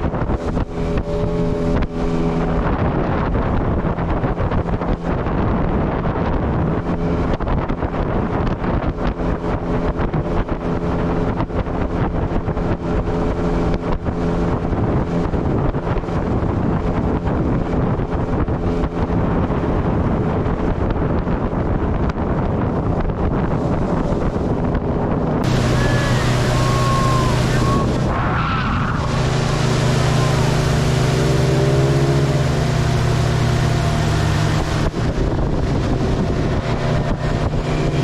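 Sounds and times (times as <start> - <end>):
outboard motor running: 0.0 - 38.0
water rushing beneath hull: 0.0 - 38.0
wind buffeting microphone: 0.0 - 38.0.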